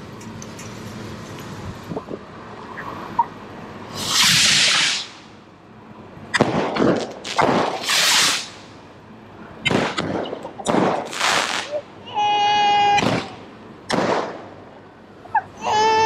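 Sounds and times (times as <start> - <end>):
firework cracks: 3.9 - 5.3, 6.3 - 8.8, 9.6 - 11.8, 12.9 - 14.6
firework rocket whoosh: 3.9 - 5.3, 6.4 - 8.7, 9.7 - 11.8.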